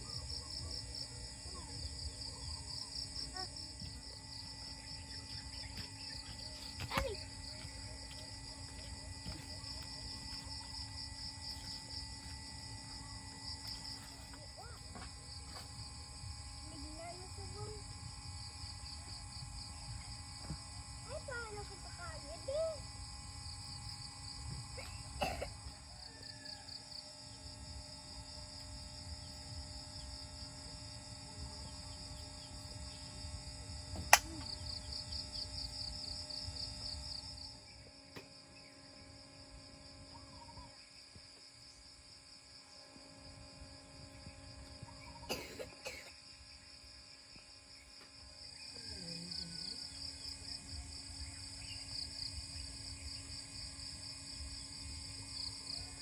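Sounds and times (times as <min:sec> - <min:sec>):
insect chorus pulsing trill: 0:00.0 - 0:56.0
low background hum: 0:00.0 - 0:56.0
sharp click: 0:34.1 - 0:34.5.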